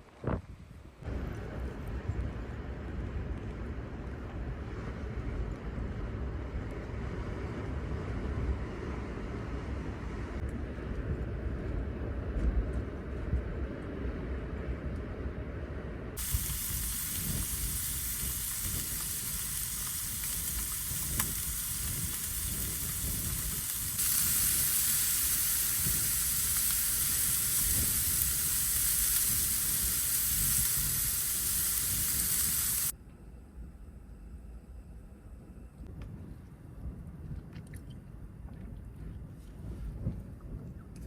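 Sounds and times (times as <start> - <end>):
food sizzling in a pan: 16.2 - 32.9.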